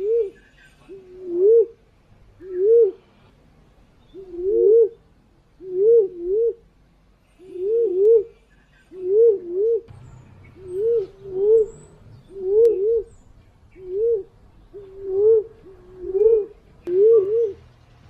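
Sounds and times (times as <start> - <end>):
pigeon cooing: 0.0 - 1.8, 2.4 - 3.1, 4.2 - 5.0, 5.6 - 6.6, 7.4 - 9.9, 10.5 - 13.2, 13.8 - 17.7.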